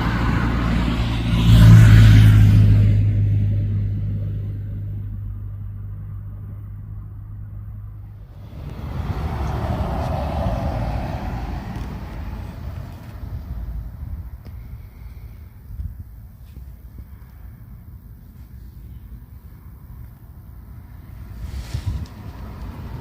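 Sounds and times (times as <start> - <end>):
aircraft engine drone: 0.0 - 16.3.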